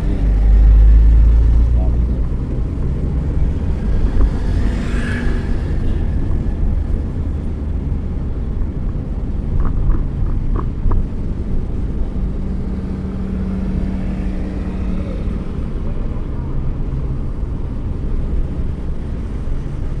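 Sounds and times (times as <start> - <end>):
car driving rumble: 0.0 - 20.0.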